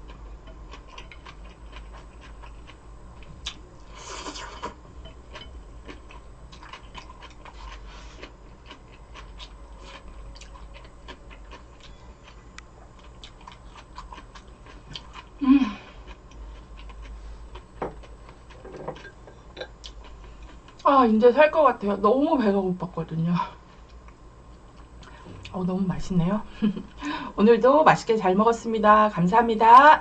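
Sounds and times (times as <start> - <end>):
person chewing food: 0.0 - 20.8.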